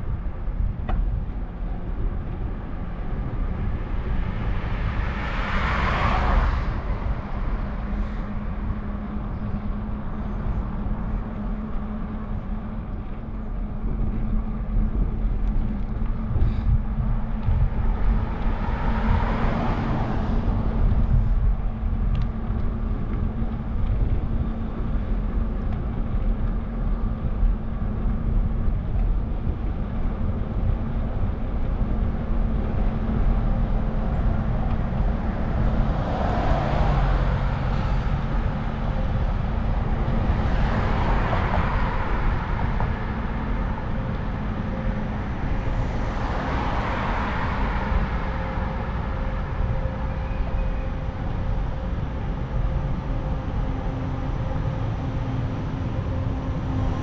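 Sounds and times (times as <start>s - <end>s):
wind rumbling on microphone: 0.0s - 57.0s
car passing: 3.2s - 9.2s, 17.4s - 21.8s, 33.0s - 57.0s.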